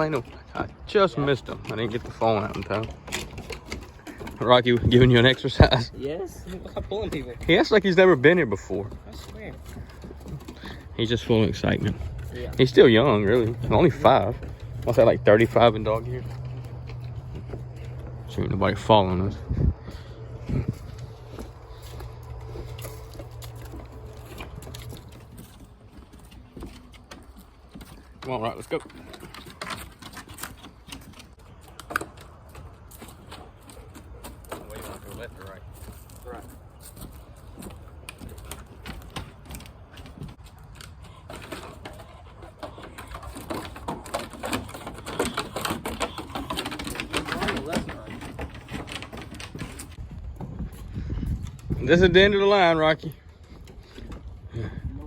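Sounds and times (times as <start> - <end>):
footsteps walking: 0.0 - 54.9
steady low rumble: 14.5 - 25.3.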